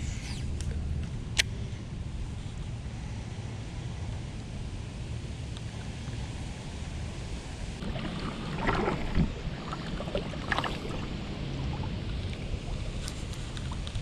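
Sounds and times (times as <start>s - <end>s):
wind rumble on microphone: 0.0s - 14.0s
light knocks and splashes: 7.8s - 14.0s
water lapping at hull: 7.8s - 14.0s.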